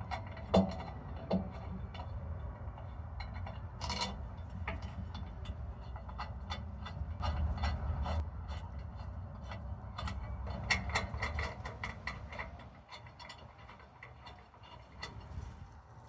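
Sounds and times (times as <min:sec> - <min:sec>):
hand tools clicking on metal: 0:03.2 - 0:15.5.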